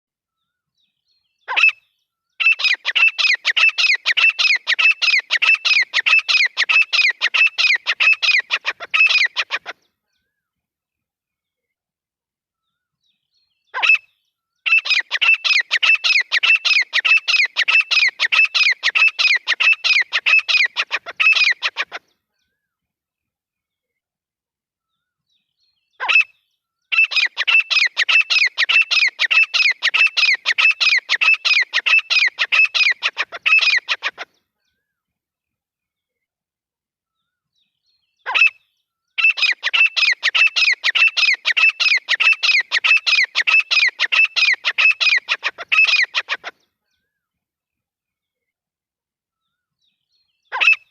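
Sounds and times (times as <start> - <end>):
francolin calling: 14.7 - 22.0, 39.2 - 46.5.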